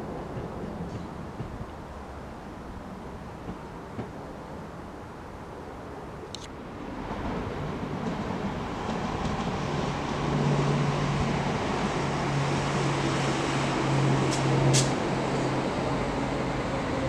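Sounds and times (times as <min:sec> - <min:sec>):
train running past: 0:06.6 - 0:17.0.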